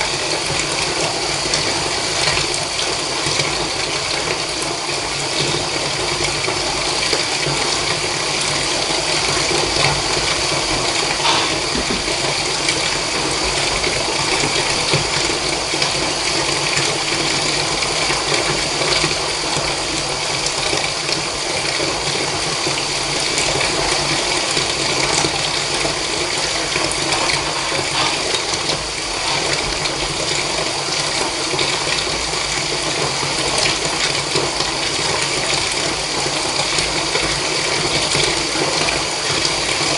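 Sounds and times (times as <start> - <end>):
water pouring into bath: 0.0 - 39.9.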